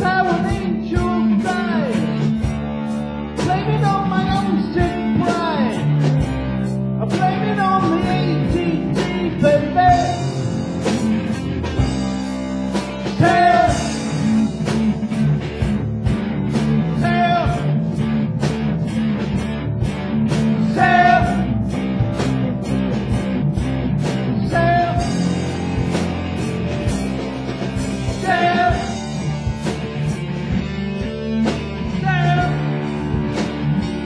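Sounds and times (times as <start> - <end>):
person singing: 0.0 - 2.2, 3.4 - 5.9, 7.0 - 10.5, 13.2 - 15.3, 16.8 - 17.8, 20.6 - 21.5, 24.4 - 25.4, 28.1 - 29.2, 31.8 - 32.9
bass guitar: 0.0 - 34.0
electric guitar: 0.0 - 34.0
steady drum beat: 0.0 - 34.0.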